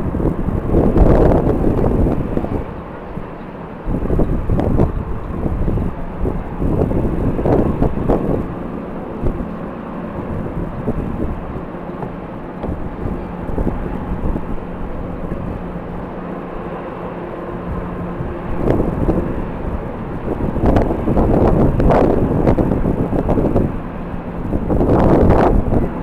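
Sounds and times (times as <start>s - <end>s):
airliner engines humming: 0.0s - 26.0s
wind buffeting microphone: 0.0s - 26.0s.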